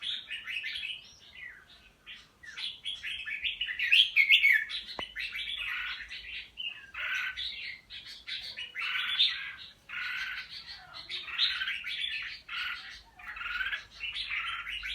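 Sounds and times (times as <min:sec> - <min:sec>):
songbird singing short phrases: 0:00.0 - 0:14.9.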